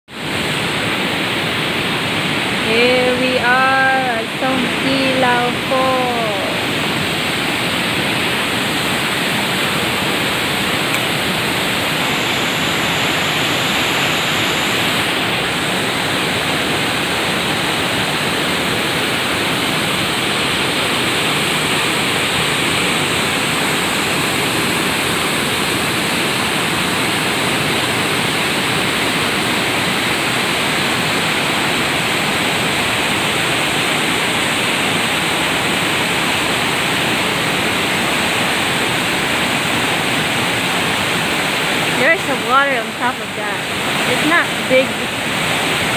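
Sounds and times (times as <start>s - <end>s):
small waterfall rushing: 0.1s - 45.9s
person calling out: 2.7s - 6.7s.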